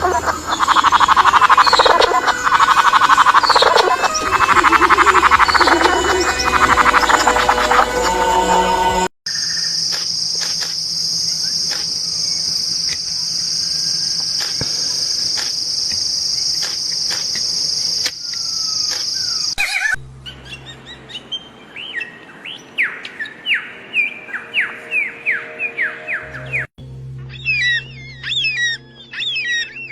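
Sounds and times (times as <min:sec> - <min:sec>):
high-pitched buzzing trill: 0:00.0 - 0:09.1
songbird downward whistled notes: 0:00.4 - 0:08.8.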